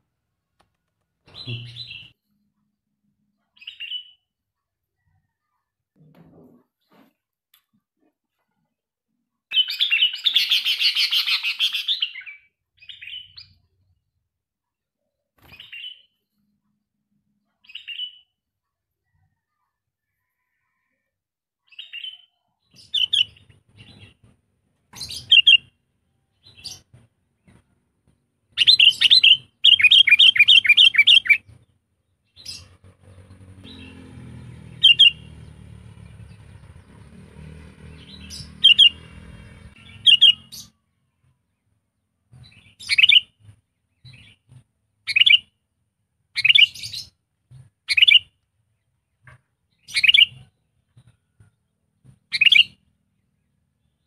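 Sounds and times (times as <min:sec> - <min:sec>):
bulbul chirping: 0:25.0 - 0:25.7, 0:28.6 - 0:31.4, 0:34.8 - 0:35.3, 0:38.2 - 0:39.0, 0:39.8 - 0:40.7.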